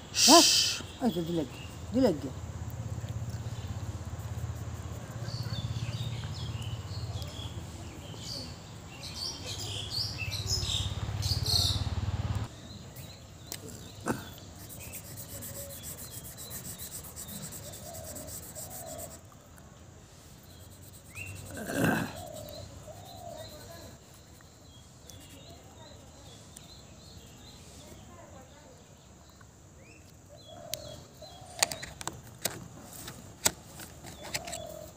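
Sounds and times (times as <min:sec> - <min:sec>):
small birds chirping: 0:00.0 - 0:34.9
marker rubbing on paper: 0:14.1 - 0:19.2, 0:20.4 - 0:24.5.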